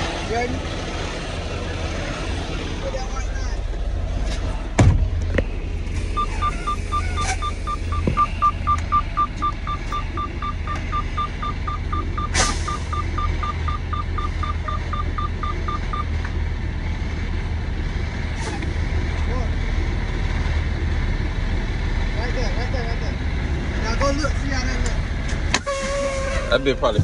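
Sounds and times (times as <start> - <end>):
diesel engine idling: 0.0 - 27.0
rapid electronic beeping: 6.2 - 16.1.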